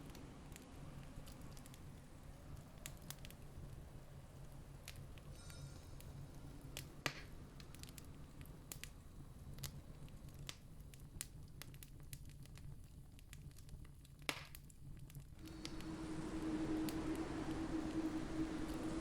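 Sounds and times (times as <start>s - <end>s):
campfire crackling: 0.0s - 19.0s
low steady rumble: 15.4s - 19.0s.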